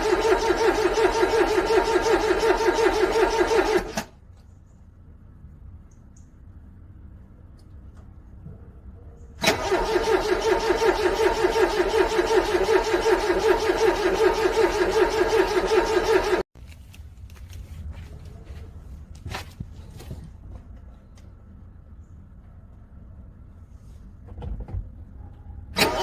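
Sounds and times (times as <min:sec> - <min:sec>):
car engine cranking: 0:00.0 - 0:04.2, 0:09.4 - 0:16.4, 0:25.7 - 0:26.0.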